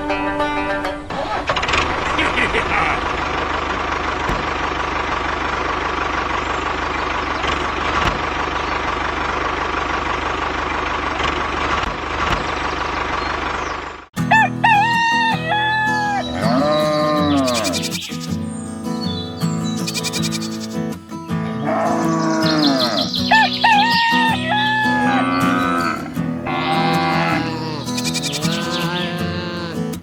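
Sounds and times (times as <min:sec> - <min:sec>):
music: 0:00.0 - 0:01.4, 0:23.2 - 0:26.5
rooster crowing: 0:14.2 - 0:17.8, 0:21.6 - 0:29.9.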